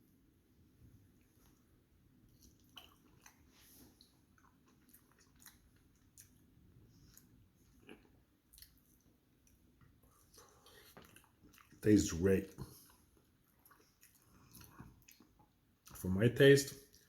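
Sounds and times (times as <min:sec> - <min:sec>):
chewing with wet mouth clicks: 0:02.3 - 0:11.8, 0:12.5 - 0:16.0.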